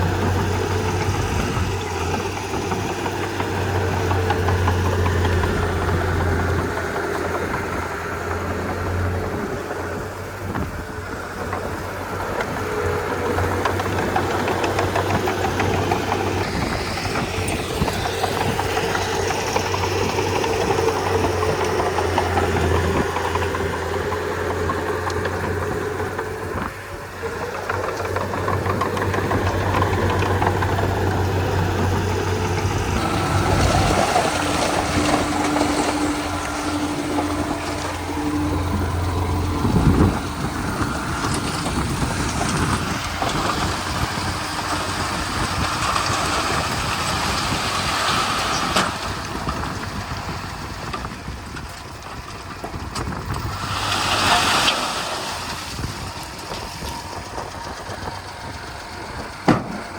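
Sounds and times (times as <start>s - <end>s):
bulldozer diesel engine running: 0.0s - 59.9s
loud thump: 59.5s - 59.9s.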